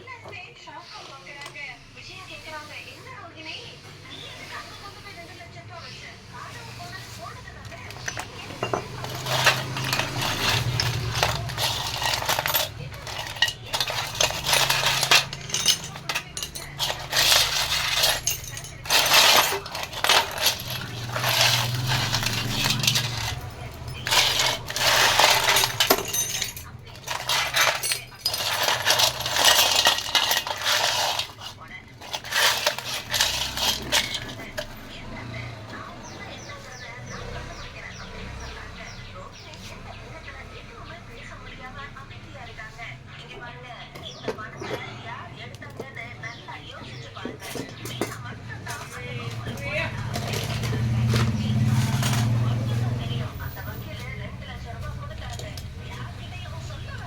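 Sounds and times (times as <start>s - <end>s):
metal parts and tools clinking: 6.7s - 35.0s, 47.2s - 57.0s.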